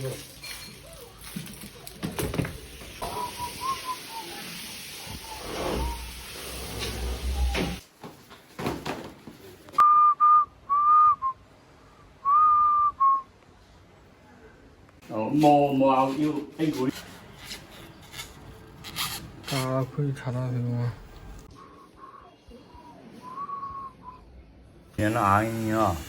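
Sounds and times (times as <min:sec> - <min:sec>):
high whistled notes: 0:03.0 - 0:06.5.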